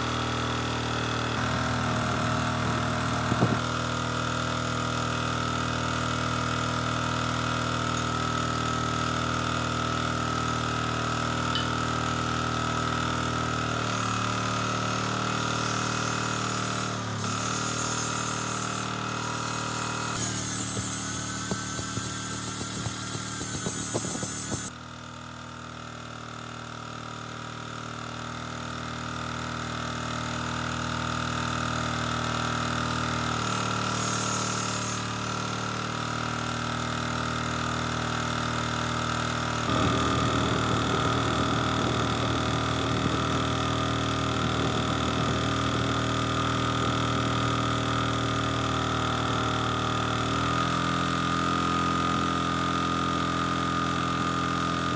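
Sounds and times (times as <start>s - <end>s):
clattering work noise: 1.4s - 3.8s, 11.4s - 12.1s, 15.3s - 24.7s, 33.4s - 35.6s
generator engine humming: 39.6s - 47.9s.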